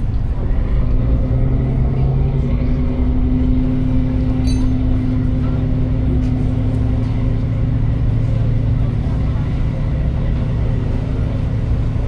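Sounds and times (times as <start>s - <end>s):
traffic engine hum: 0.0s - 12.0s.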